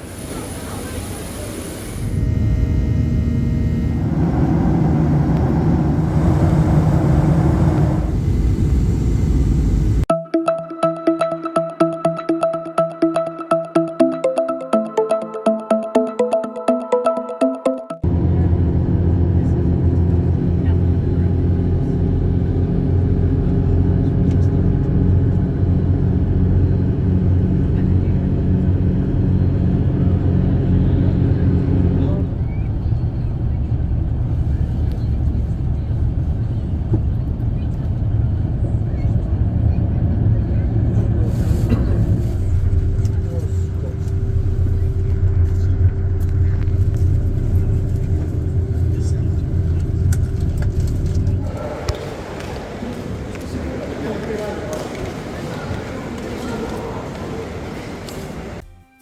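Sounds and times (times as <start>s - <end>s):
electronic music: 10.1s - 18.1s
moving vehicle rumble: 18.1s - 53.3s.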